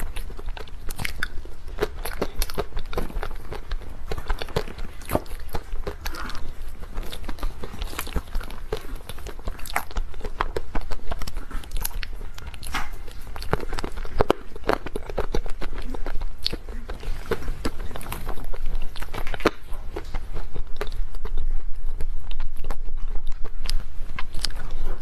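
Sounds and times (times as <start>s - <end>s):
chewing crunchy dessert: 0.0s - 25.0s.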